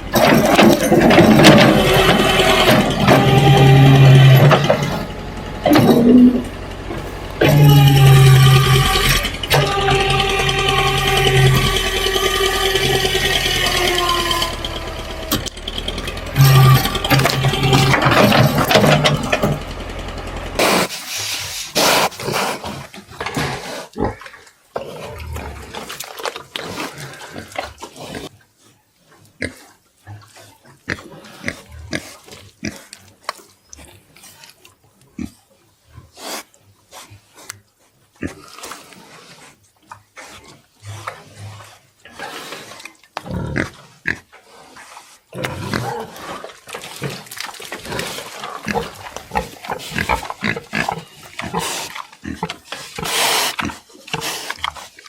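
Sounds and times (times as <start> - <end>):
pigs squealing: 0.0 - 19.9, 45.4 - 55.0
pigs grunting: 0.0 - 21.0, 21.6 - 28.4, 29.2 - 34.6, 38.2 - 55.0.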